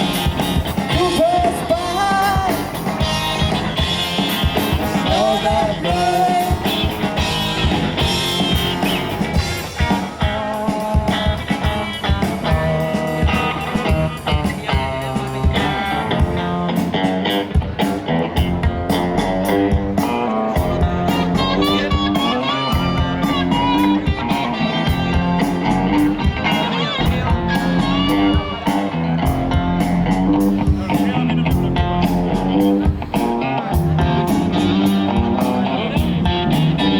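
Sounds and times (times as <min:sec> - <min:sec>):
drums keeping a steady beat: 0:00.0 - 0:36.9
electric guitar lines: 0:00.0 - 0:36.9
rock band playing: 0:00.0 - 0:36.9
person singing: 0:00.9 - 0:03.2, 0:04.9 - 0:07.0.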